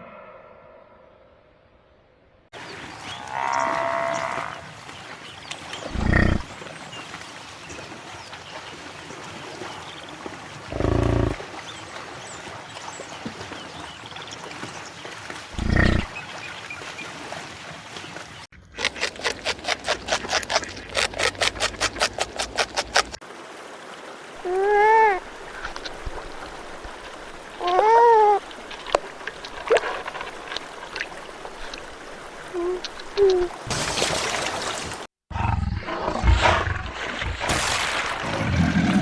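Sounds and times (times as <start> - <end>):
outdoor background noise: 0.0 - 39.0
large animal deep call: 5.9 - 6.5, 10.7 - 11.4, 15.6 - 16.1.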